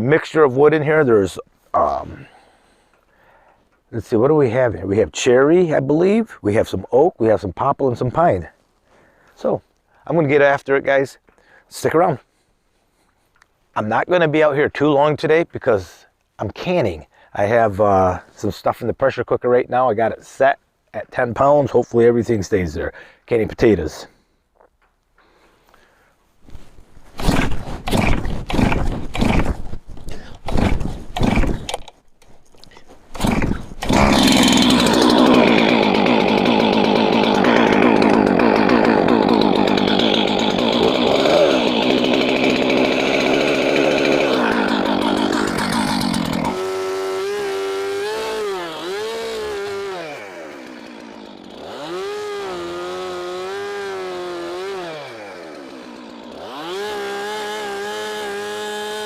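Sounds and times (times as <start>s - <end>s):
chainsaw cutting wood: 27.2s - 32.0s, 33.1s - 59.0s.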